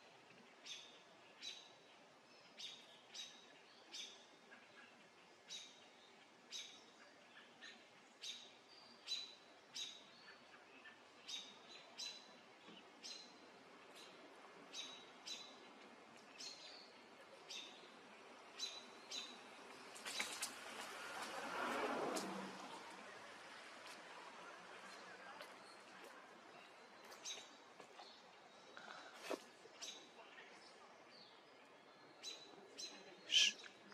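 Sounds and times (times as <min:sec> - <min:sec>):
eagle chirping: 0:33.3 - 0:33.7.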